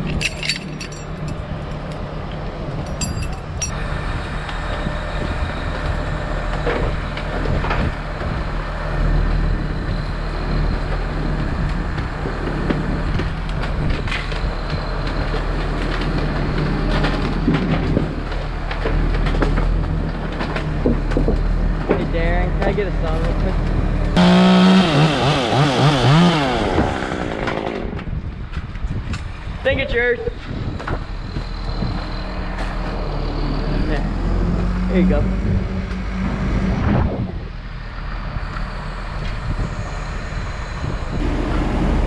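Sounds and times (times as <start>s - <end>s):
light clinks: 0.0s - 1.4s, 2.8s - 3.8s
engine droning: 0.0s - 28.6s, 30.7s - 42.0s.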